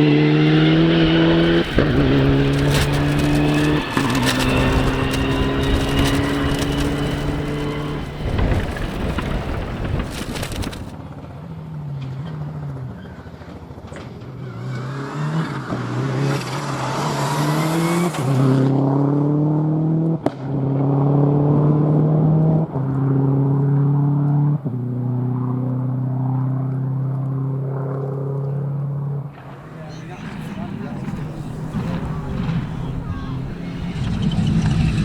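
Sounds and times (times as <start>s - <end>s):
gear upshifts: 0.0s - 11.0s, 29.4s - 35.0s
rally car engine accelerating: 0.0s - 35.0s.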